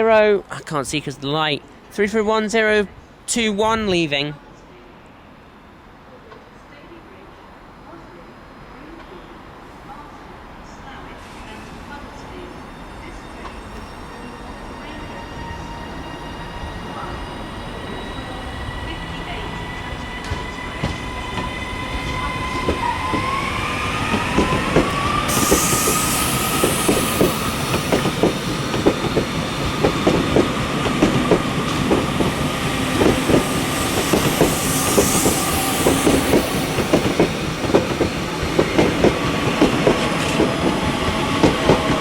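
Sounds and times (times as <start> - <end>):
train wheels clicking over rail joints: 20.2 - 42.0.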